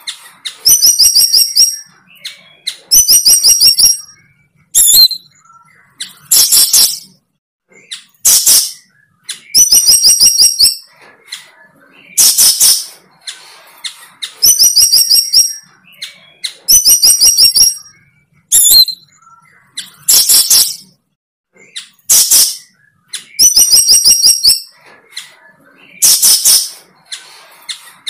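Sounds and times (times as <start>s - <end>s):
bird rasping calls and chirps: 0.0s - 28.0s.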